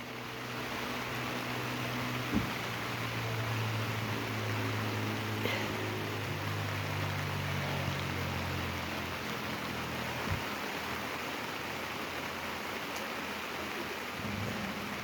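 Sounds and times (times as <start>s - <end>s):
heavy rain on an awning: 0.0s - 15.0s.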